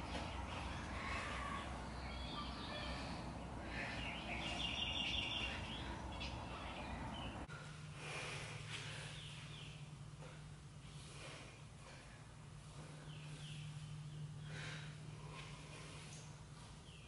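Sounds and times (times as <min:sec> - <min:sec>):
low steady background noise: 0:00.0 - 0:17.0
low steady hum: 0:00.0 - 0:17.0
small bird chirping: 0:03.9 - 0:07.5.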